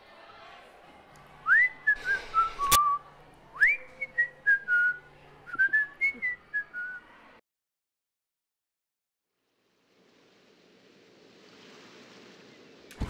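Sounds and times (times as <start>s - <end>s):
person whistling a tune: 1.5s - 3.0s, 3.6s - 7.0s.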